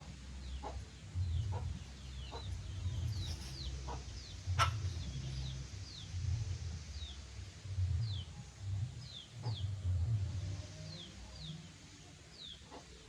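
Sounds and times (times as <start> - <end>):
low steady rumble: 0.0 - 13.0
chicks peeping: 0.4 - 7.2, 9.0 - 9.9
soft clucks: 1.5 - 5.1.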